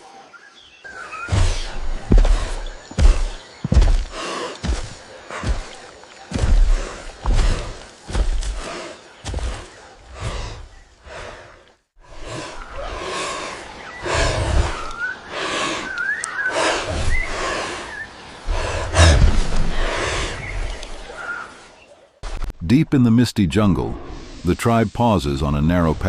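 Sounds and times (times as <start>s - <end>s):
heavy breathing: 0.9s - 21.2s
low thuds: 1.3s - 10.7s, 18.5s - 20.8s.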